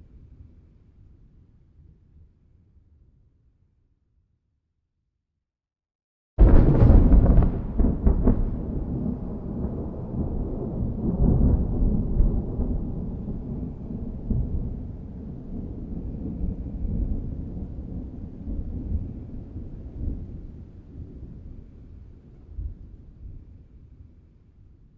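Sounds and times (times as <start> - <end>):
thunder rumbling and crackling: 6.4 - 23.6.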